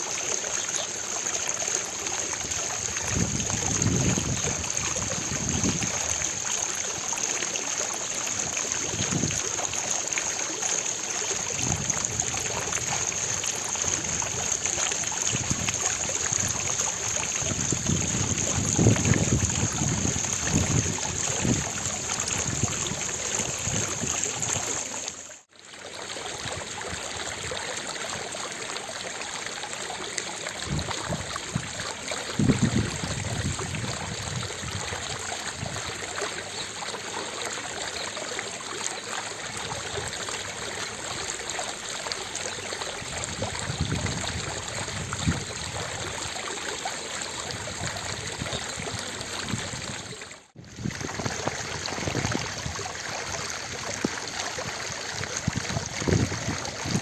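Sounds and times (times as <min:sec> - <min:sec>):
fountain water splashing: 0:00.0 - 0:57.0
wind rumbling on microphone: 0:02.4 - 0:06.5, 0:08.4 - 0:09.7, 0:11.4 - 0:25.0, 0:30.6 - 0:36.1, 0:43.0 - 0:46.4, 0:47.4 - 0:57.0.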